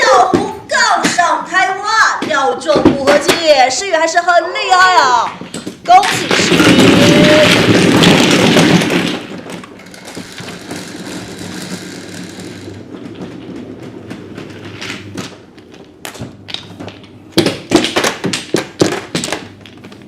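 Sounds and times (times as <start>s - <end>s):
mahjong tiles clacking: 5.5s - 17.2s.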